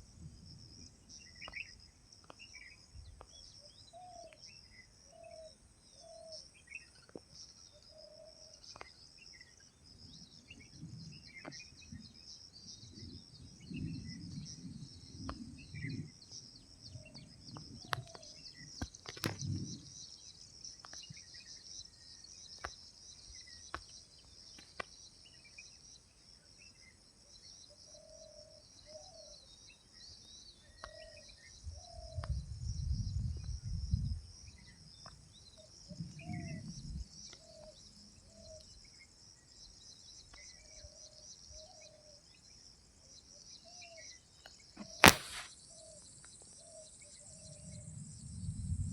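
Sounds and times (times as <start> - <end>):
insects chirping: 0.0 - 48.9
short bird calls: 44.8 - 46.0
sharp clicks: 44.9 - 45.5.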